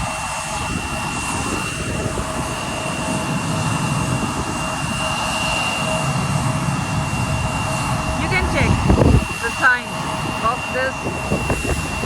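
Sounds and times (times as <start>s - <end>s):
jet engines idling: 0.0s - 12.0s.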